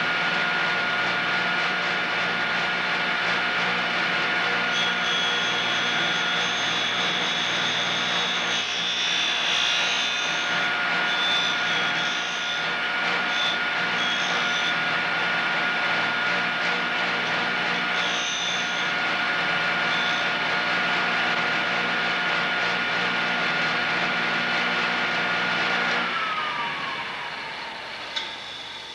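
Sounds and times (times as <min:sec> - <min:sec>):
grinder whine: 0:00.0 - 0:28.9
high-pitched metal grinding: 0:04.6 - 0:15.0, 0:17.2 - 0:20.6.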